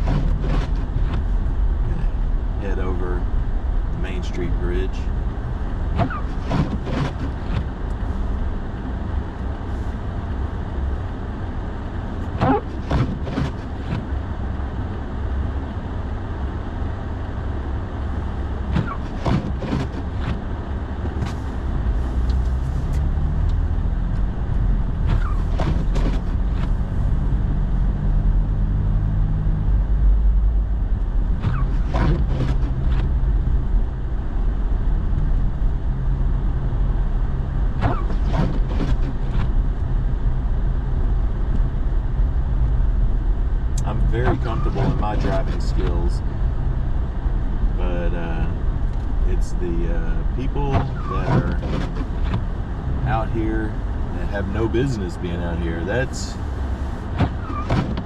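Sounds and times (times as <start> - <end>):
windshield wipers sweeping: 0.0 - 1.6, 5.6 - 8.4, 12.2 - 14.2, 18.1 - 27.4, 31.2 - 33.5, 37.7 - 39.7, 43.8 - 46.4, 50.2 - 54.0, 56.4 - 58.0
engine and tyre rumble: 0.0 - 58.0
deep drone: 20.9 - 57.0.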